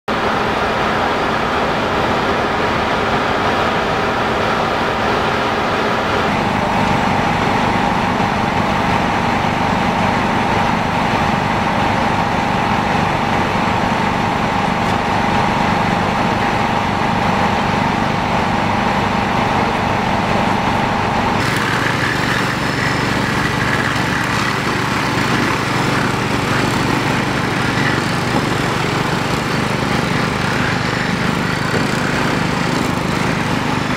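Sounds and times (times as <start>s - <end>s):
steady whine: 0.1s - 33.9s
small engine running: 21.3s - 33.9s.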